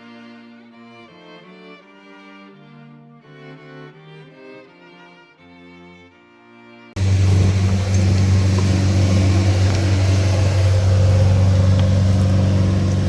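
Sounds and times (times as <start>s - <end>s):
airliner engines from cabin: 7.0s - 13.0s.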